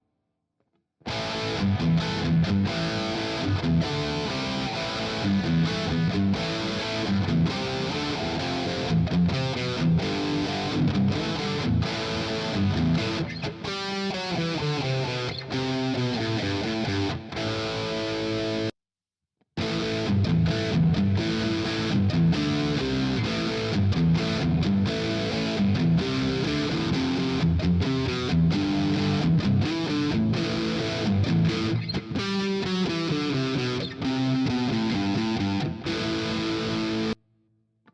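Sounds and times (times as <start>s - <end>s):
electric guitar playing: 1.0s - 18.7s, 19.6s - 37.2s.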